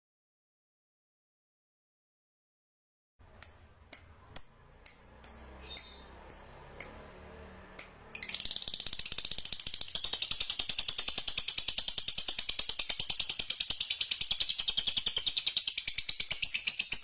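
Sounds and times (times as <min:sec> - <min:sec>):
sharp high bird notes: 0:03.4 - 0:11.6
fast buzzing bird trill: 0:05.2 - 0:17.0.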